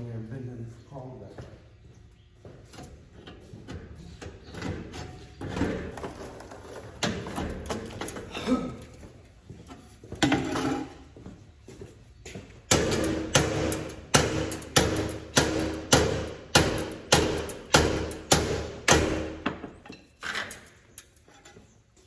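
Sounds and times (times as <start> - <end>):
hammer striking steel: 12.7 - 19.6.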